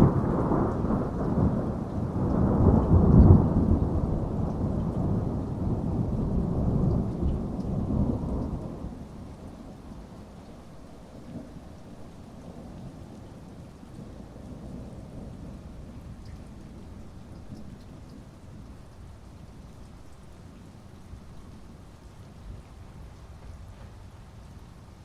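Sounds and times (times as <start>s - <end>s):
rolling thunder rumble: 0.0s - 10.0s
raindrops ticking: 0.0s - 24.6s
heavy rain falling: 0.0s - 25.0s.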